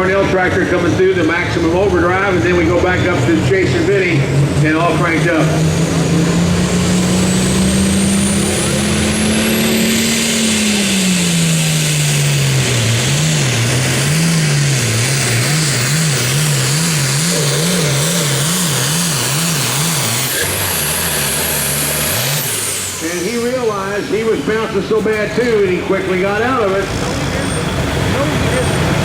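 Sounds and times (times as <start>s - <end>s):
commentator speaking: 0.0s - 5.7s, 17.2s - 18.6s, 23.0s - 29.0s
diesel tractor engine under load: 0.0s - 29.0s.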